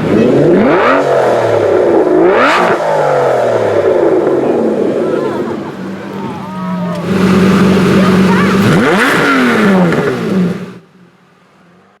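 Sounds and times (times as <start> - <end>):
engine revving hard: 0.0 - 6.1, 6.9 - 10.8.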